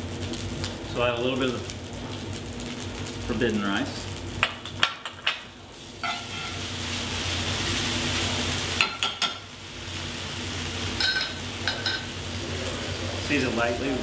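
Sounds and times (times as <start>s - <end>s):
grains sizzling in fat: 0.0s - 14.0s.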